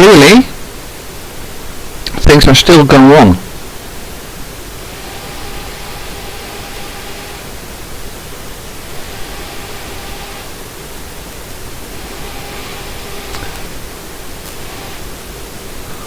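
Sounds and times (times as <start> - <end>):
steady hiss: 0.0 - 16.0
faint electric motor buzz: 3.5 - 16.0.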